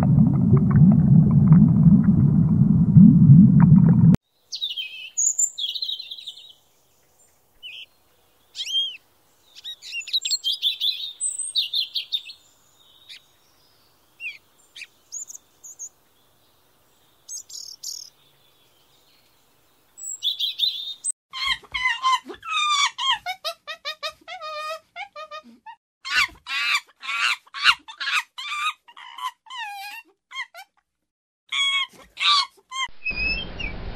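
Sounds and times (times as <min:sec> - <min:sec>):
small bird chirping: 0:04.4 - 0:07.9, 0:08.5 - 0:19.4, 0:20.0 - 0:21.1, 0:33.0 - 0:33.9.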